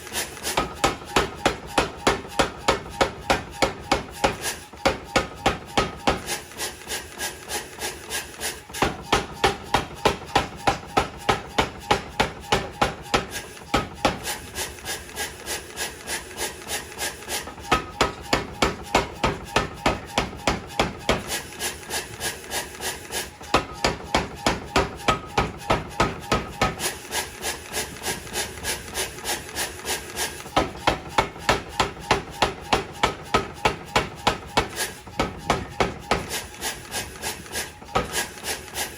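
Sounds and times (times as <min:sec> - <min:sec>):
forging hammer striking hot metal: 0:00.6 - 0:06.3, 0:08.8 - 0:14.4, 0:17.5 - 0:21.4, 0:23.5 - 0:27.0, 0:30.6 - 0:38.4.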